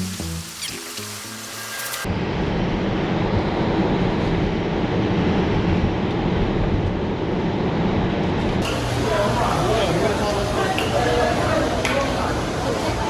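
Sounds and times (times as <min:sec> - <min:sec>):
music: 0:00.0 - 0:02.1.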